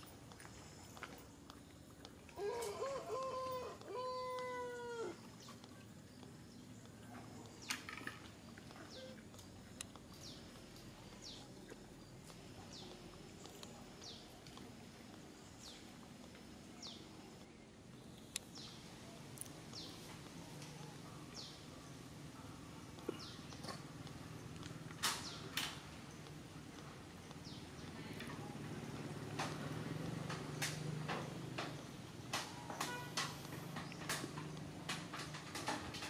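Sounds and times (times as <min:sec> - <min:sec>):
bird calling: 0:02.3 - 0:05.8, 0:07.5 - 0:09.3.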